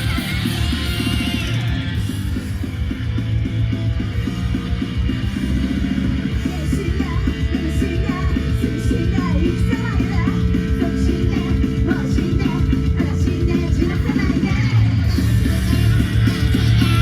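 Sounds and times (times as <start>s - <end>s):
people yelling and singing: 0.0s - 2.4s, 6.2s - 17.0s
loud rock music: 0.0s - 17.0s.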